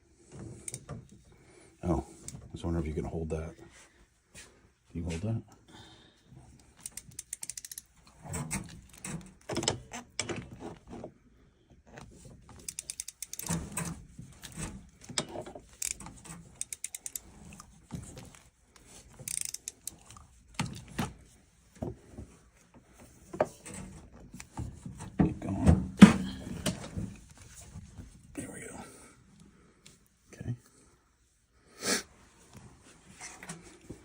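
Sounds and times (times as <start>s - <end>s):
ratcheting expansion tool clicking: 0.6s - 0.9s, 6.7s - 10.3s, 12.5s - 20.9s.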